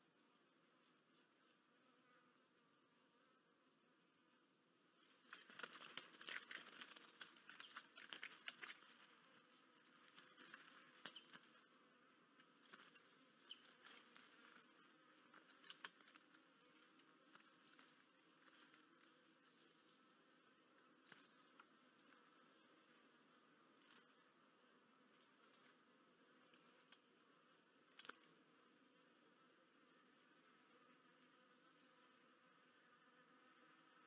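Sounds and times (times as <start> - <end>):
bird wings fluttering: 5.0 - 11.7, 12.6 - 19.7.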